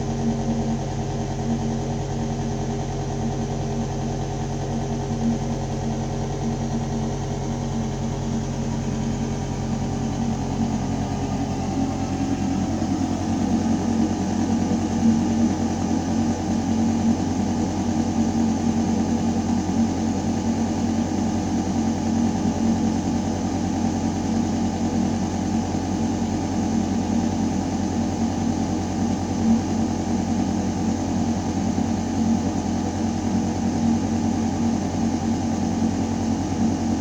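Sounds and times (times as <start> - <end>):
ventilation system humming: 7.8 - 37.0.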